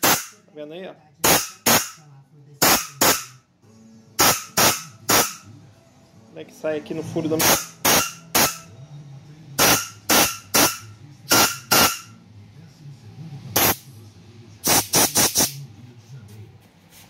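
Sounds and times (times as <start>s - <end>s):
compressed air blasts: 0.0s - 0.4s, 1.2s - 1.9s, 4.2s - 5.4s, 7.4s - 8.6s, 9.6s - 12.0s, 13.6s - 13.9s, 14.6s - 15.6s.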